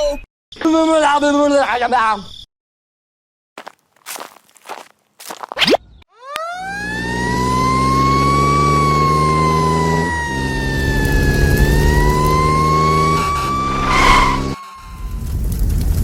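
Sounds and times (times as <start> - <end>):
siren wailing: 6.4 - 15.0.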